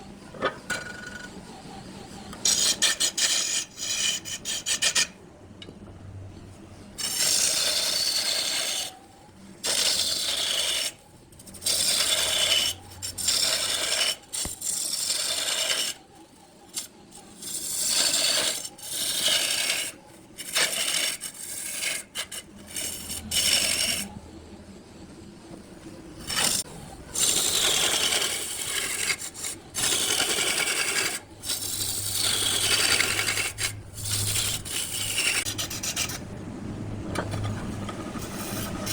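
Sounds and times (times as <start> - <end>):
lathe tool scraping wood: 2.4 - 5.1, 7.0 - 8.9, 9.6 - 10.9, 11.6 - 16.0, 17.4 - 24.1, 26.2 - 36.3.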